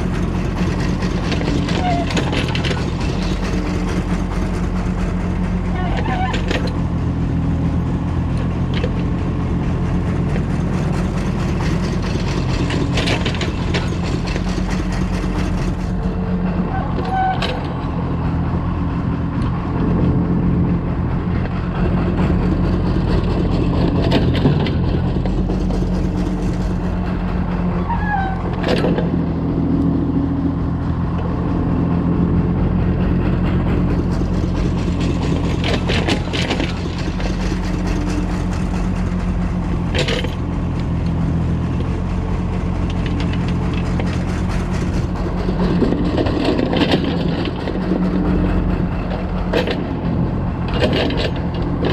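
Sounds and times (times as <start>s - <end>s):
excavator diesel engine: 0.0s - 51.9s.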